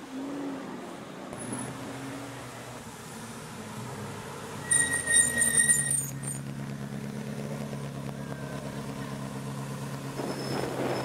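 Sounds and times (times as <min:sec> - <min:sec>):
brief high squeal: 0:04.6 - 0:06.4, 0:10.2 - 0:11.0.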